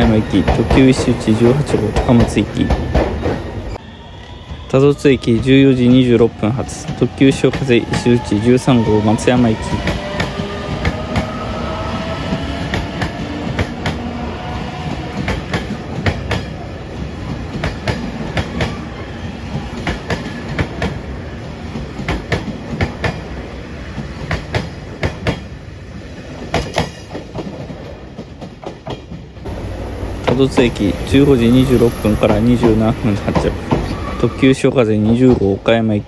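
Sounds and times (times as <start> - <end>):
train wheels clacking: 0.0 - 3.7, 9.2 - 11.4, 12.0 - 14.2, 14.8 - 25.6, 26.4 - 34.4
train rolling rumble: 0.0 - 36.0.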